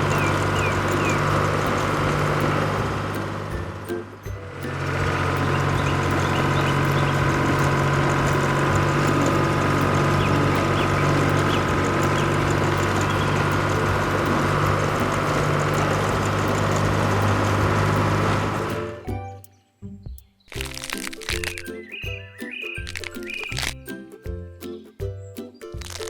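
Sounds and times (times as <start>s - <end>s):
vehicle engine humming: 0.0s - 19.3s.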